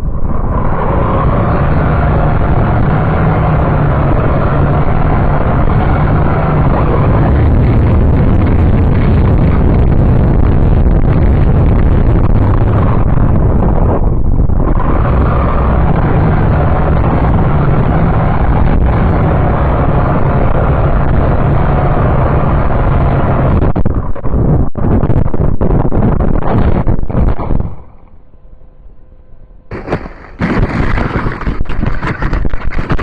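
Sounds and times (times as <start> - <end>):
quadcopter motors and propellers: 0.0 - 13.8, 14.6 - 23.6
wind noise on microphone: 0.0 - 28.2, 29.7 - 33.0.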